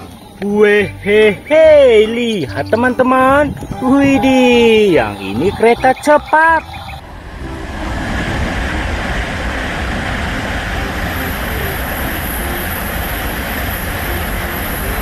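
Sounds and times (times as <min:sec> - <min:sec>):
thin high whine: 0:00.0 - 0:15.0
train rushing past: 0:03.8 - 0:15.0.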